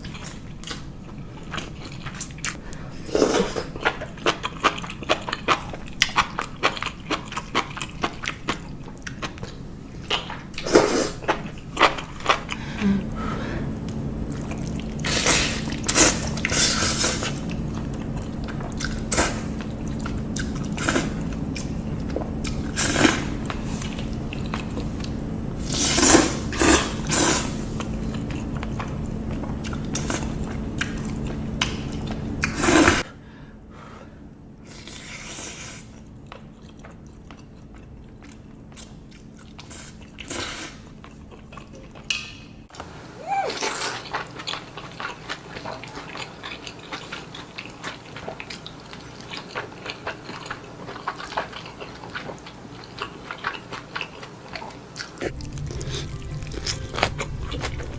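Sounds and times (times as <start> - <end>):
person chewing and crunching: 0.0 - 13.1, 13.8 - 33.0, 34.7 - 42.1, 43.6 - 57.9
steady low hum: 0.0 - 43.2, 55.2 - 57.9.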